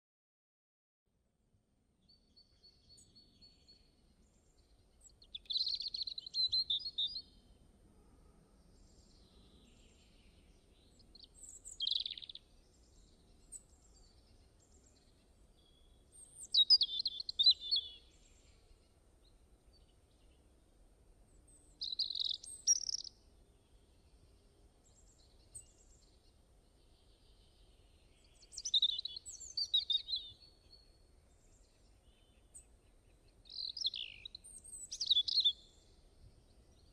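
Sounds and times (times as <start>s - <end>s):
bird chirping: 2.0s - 7.5s, 8.8s - 20.5s, 21.3s - 36.9s.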